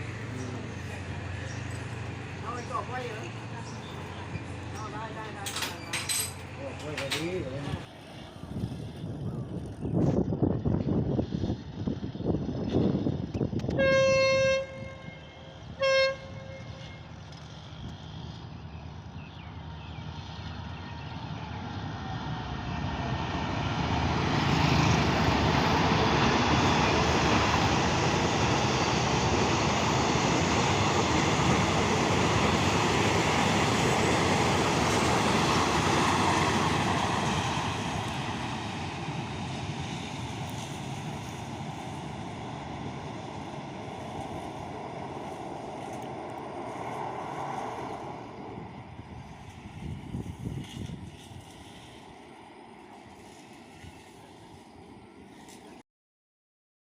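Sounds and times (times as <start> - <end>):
train rumbling past: 0.0 - 55.8
train horn blasts: 13.7 - 17.4.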